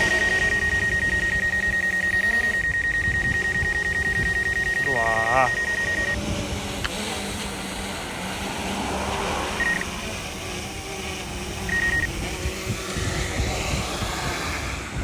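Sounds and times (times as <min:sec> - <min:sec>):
short high beeps: 0:00.0 - 0:06.2, 0:09.6 - 0:09.9, 0:11.7 - 0:12.2
low motor hum: 0:00.0 - 0:15.0
wind buffeting microphone: 0:00.0 - 0:15.0.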